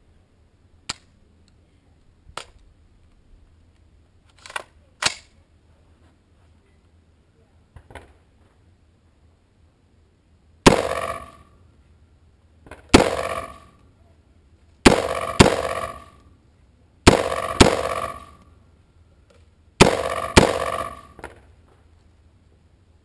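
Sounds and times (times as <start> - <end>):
gunshots: 10.6 - 11.4, 12.9 - 13.8, 14.8 - 16.2, 17.1 - 18.4, 19.8 - 21.3.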